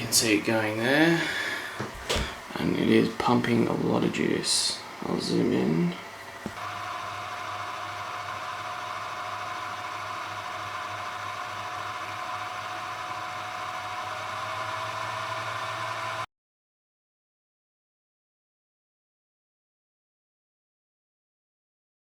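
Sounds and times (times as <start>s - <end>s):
cooling fans whirring: 0.0s - 16.3s.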